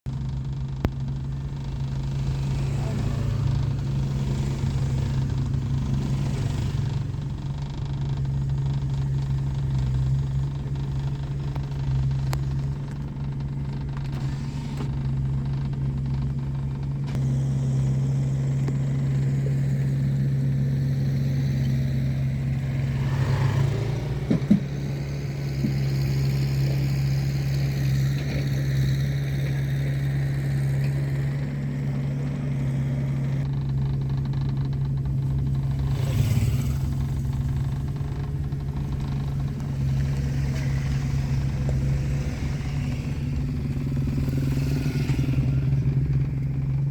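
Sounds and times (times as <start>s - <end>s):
engine humming: 0.0s - 46.9s.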